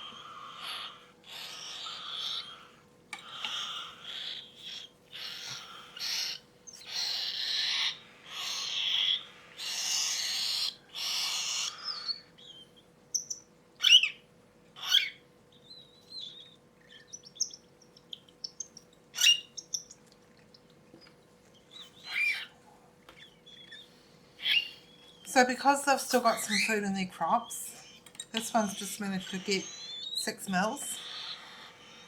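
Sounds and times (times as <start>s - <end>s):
chick raspy begging calls: 0.0s - 12.4s, 24.4s - 32.0s.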